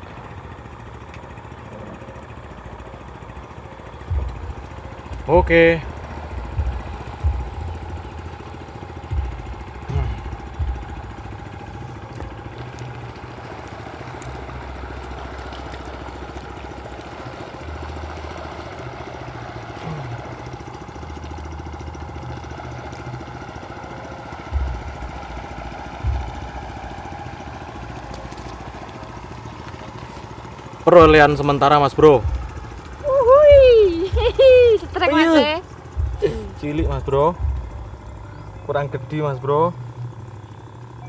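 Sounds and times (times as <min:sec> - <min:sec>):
small motor running: 0:00.0 - 0:41.0
short low thumps: 0:04.0 - 0:13.4, 0:24.4 - 0:28.0, 0:31.0 - 0:38.7.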